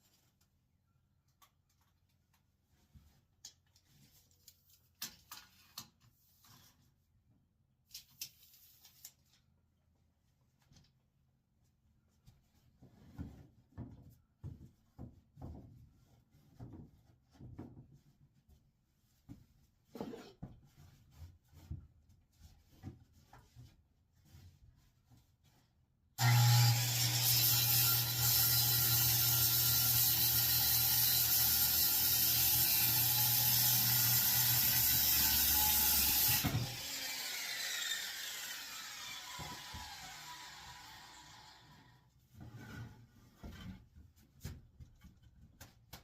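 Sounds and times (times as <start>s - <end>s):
power tool motor running: 26.2s - 28.2s, 35.6s - 41.6s.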